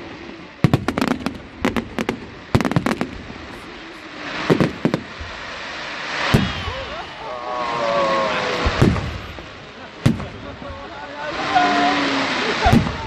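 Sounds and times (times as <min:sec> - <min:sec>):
fireworks bursting with cracking bangs: 0:00.0 - 0:13.0.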